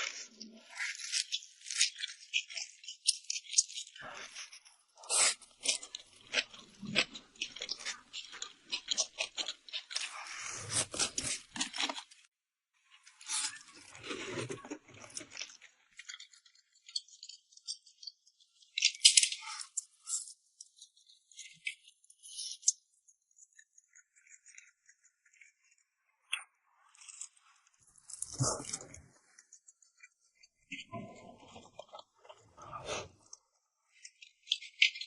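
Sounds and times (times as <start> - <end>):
person eating noodles: 3.9 - 12.3.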